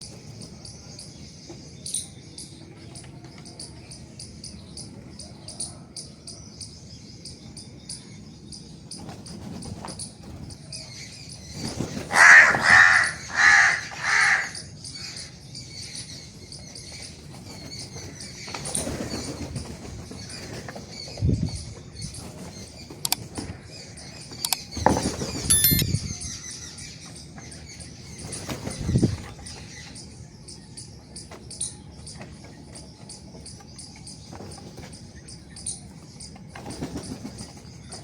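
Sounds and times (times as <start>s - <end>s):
small birds chirping: 0.0s - 12.1s, 14.0s - 38.0s
crow cawing: 12.1s - 14.7s.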